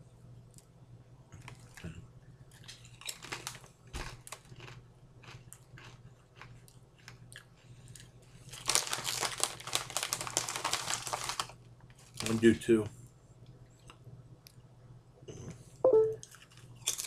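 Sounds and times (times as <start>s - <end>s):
crunching and chewing chip: 2.5s - 12.4s, 16.2s - 17.0s
chip bag crinkling: 3.0s - 6.5s, 8.4s - 12.7s.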